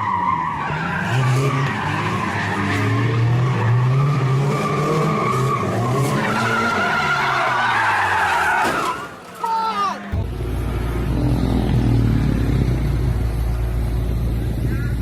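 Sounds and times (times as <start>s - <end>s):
car engine revving: 0.2s - 7.6s, 10.1s - 15.0s
tyres squealing: 3.5s - 10.2s.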